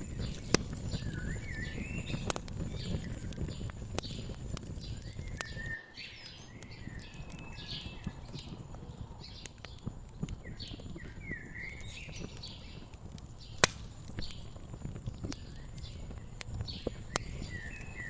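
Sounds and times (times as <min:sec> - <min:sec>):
songbirds chirping: 0:00.0 - 0:18.0
wood fire crackling and popping: 0:00.0 - 0:18.0.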